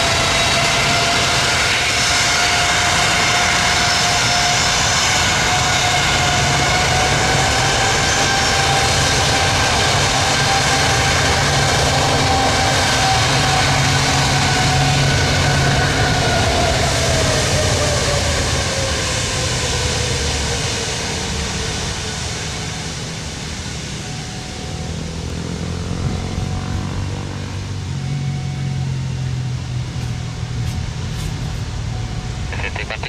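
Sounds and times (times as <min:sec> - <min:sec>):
jet engines passing by: 0:00.0 - 0:33.0.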